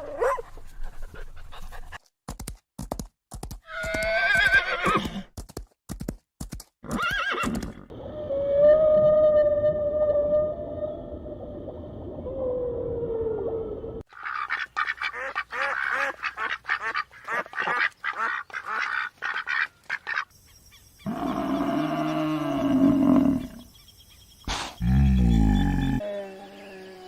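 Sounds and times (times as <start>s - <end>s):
ducks quacking: 14.1s - 20.3s.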